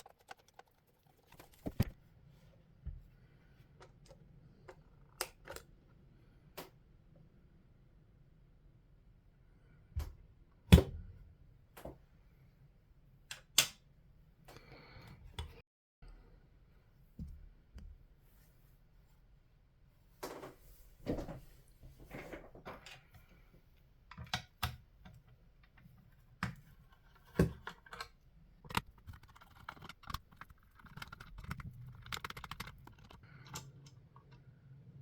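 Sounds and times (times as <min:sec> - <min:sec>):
clicks and taps of small parts: 0:26.4 - 0:34.0.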